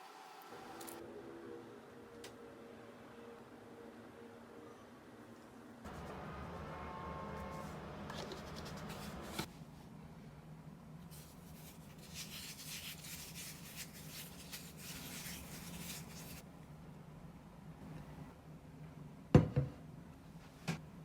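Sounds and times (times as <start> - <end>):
scratchy scraping strokes: 11.1 - 16.4.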